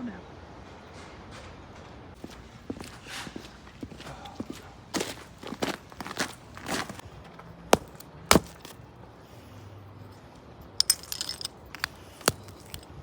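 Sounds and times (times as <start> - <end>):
ice and snow crunching underfoot: 2.2 - 7.1, 7.8 - 8.8, 11.8 - 12.8.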